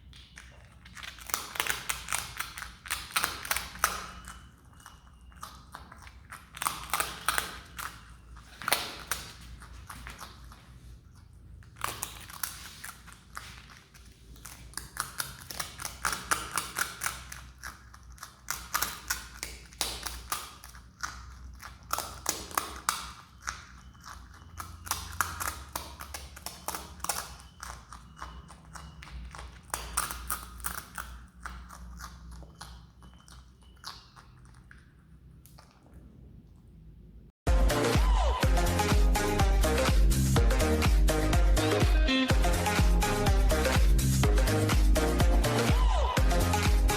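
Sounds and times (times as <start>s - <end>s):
animal crunching and chewing: 0.0s - 36.4s.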